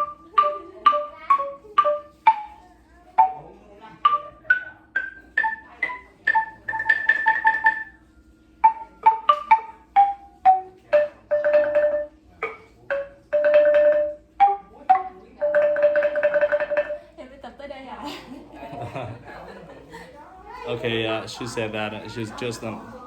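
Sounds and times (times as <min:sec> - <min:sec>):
tuned percussion notes: 0:00.0 - 0:17.2.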